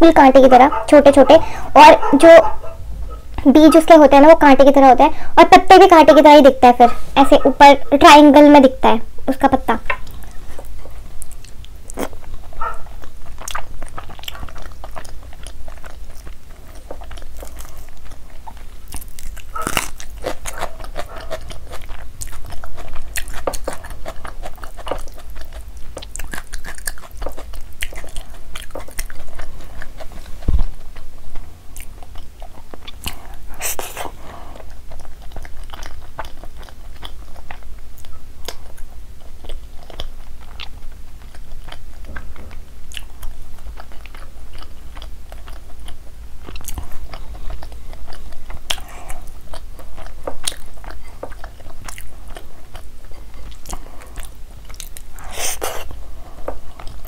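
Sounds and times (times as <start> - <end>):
person chewing: 9.9 - 57.0.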